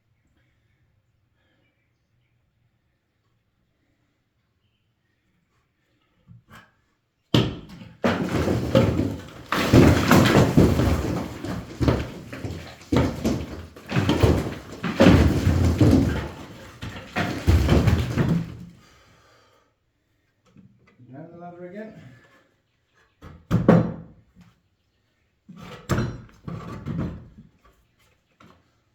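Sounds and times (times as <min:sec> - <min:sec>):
brick wall crashing: 0:07.3 - 0:18.9
bricks and rubble clattering: 0:07.4 - 0:18.8.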